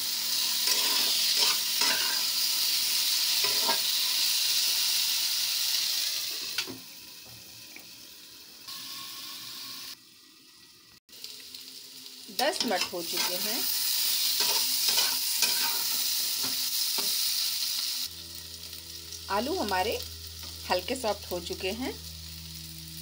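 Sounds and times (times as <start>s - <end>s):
vegetables sizzling in oil: 0.0s - 23.0s
spatula stirring and scraping: 0.6s - 2.2s, 14.4s - 15.9s.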